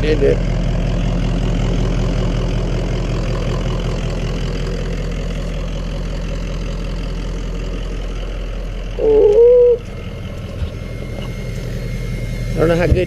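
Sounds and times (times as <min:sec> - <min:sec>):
engine idling deeply: 0:00.0 - 0:13.0.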